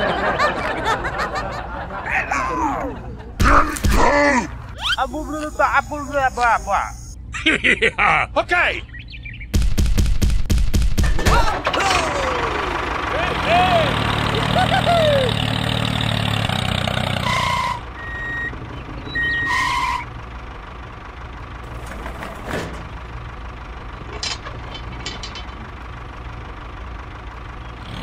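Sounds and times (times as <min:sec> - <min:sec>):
squeaky chirps: 0:04.7 - 0:07.2, 0:17.3 - 0:20.1
toy tractor engine running: 0:04.8 - 0:07.1.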